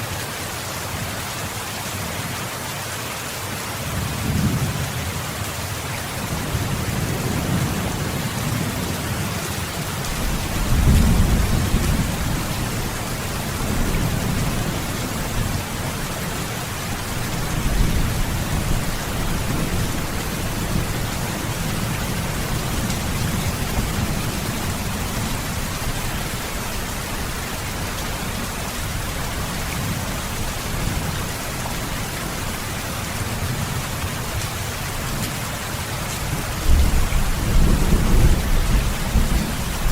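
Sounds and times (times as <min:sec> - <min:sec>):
heavy rain pouring: 0:00.0 - 0:39.9
low thunder rumbling: 0:06.3 - 0:31.1, 0:36.6 - 0:39.9.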